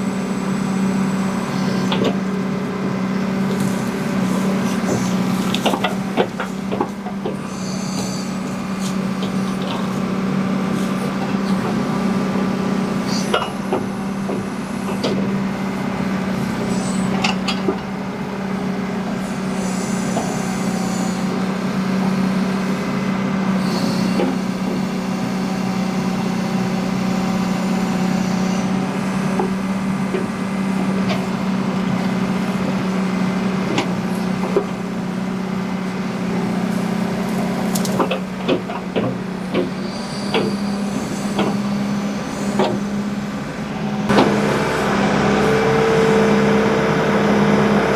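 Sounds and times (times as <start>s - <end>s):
backhoe diesel engine running: 0.0s - 47.9s
sharp knocks and clanks: 37.7s - 40.7s.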